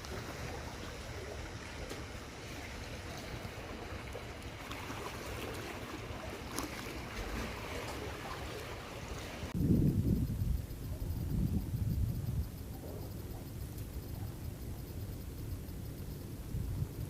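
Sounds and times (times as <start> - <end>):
sea water washing: 0.0 - 9.6
wind noise: 0.0 - 17.0.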